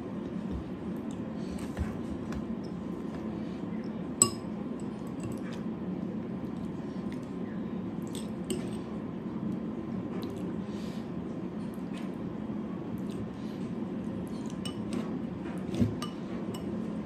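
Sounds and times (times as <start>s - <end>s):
steady low hum: 0.0s - 17.0s
tableware clink: 4.2s - 4.5s.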